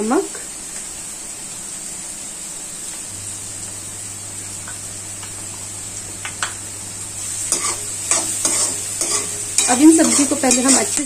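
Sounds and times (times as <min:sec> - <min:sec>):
vegetables sizzling in a wok: 0:00.0 - 0:11.0
low steady hum: 0:02.8 - 0:11.0.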